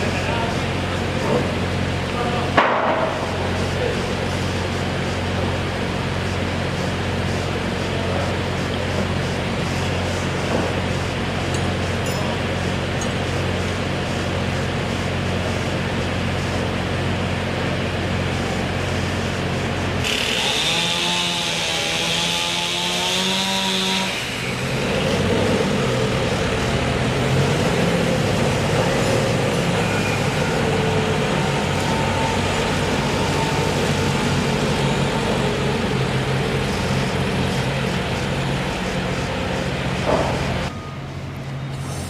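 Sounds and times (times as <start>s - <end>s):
large engine running: 0.0s - 42.0s
sharp knock: 2.6s - 3.2s
wavering high-pitched machine sound: 18.2s - 42.0s.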